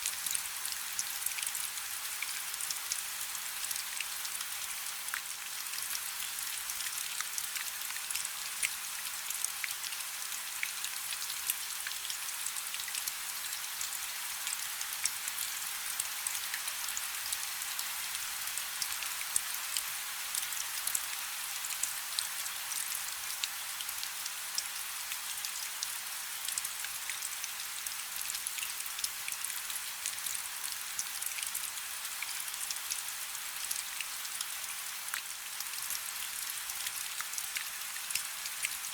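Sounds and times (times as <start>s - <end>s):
rain falling on a river: 0.0s - 38.9s.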